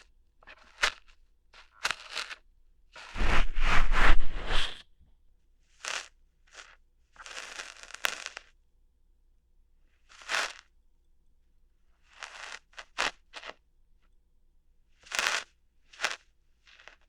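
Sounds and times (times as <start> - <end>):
ear hair plucking scratches: 3.2 - 4.8
rough scraping: 3.2 - 4.8.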